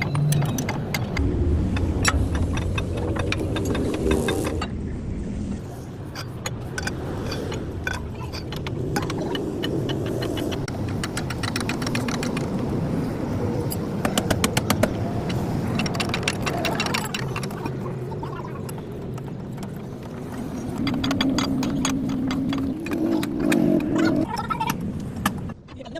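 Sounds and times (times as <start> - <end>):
sharp clicks and knocks: 0.0 - 4.7, 6.1 - 12.6, 14.0 - 17.8, 18.6 - 25.9
engine running: 0.0 - 12.9.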